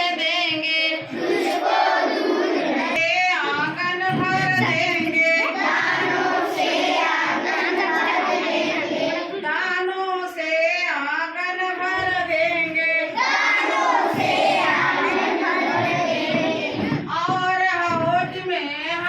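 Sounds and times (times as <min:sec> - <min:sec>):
children singing: 0:00.0 - 0:09.7, 0:12.4 - 0:17.2.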